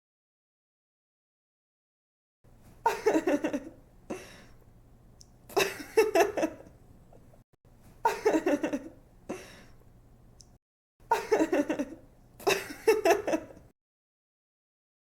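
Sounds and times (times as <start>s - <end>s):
woman giggling: 2.8s - 4.4s, 5.5s - 6.7s, 8.0s - 9.6s, 11.1s - 13.7s.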